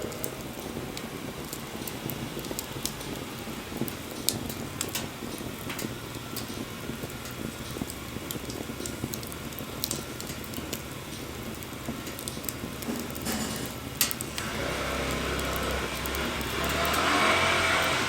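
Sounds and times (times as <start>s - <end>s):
motor vehicle rumble: 0.0s - 18.0s
wood fire crackling and popping: 0.0s - 18.0s.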